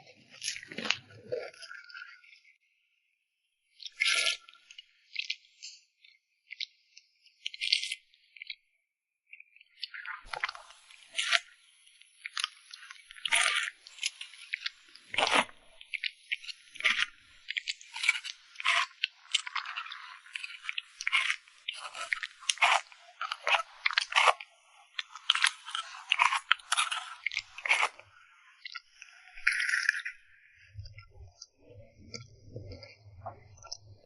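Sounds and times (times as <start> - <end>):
crunchy chewing and biting: 4.0 - 4.5, 7.4 - 8.6, 9.9 - 11.6, 12.2 - 30.2.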